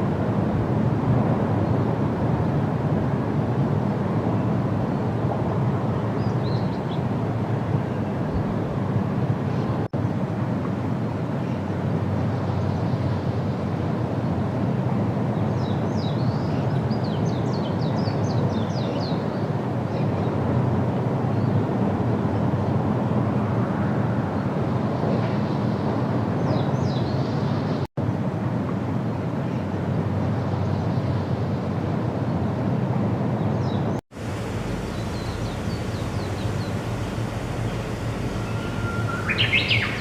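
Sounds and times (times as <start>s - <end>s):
low outdoor rumble: 34.1s - 40.0s
faint high bird chirps: 34.4s - 40.0s.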